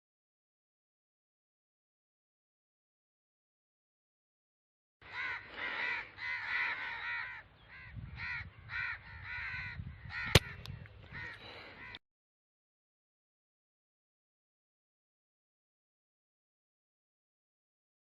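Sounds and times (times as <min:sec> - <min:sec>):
crows cawing: 0:05.0 - 0:12.0
air rifle shot: 0:10.3 - 0:10.7.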